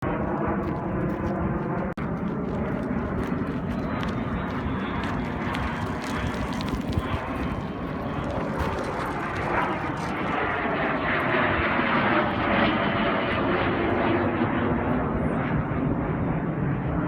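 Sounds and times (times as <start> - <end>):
jet engines rumbling past: 0.0 - 17.0.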